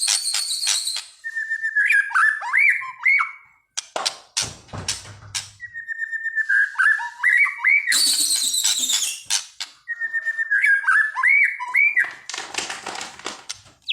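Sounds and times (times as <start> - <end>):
bird singing whistled phrases: 0.0 - 3.4, 5.6 - 9.2, 9.9 - 12.1.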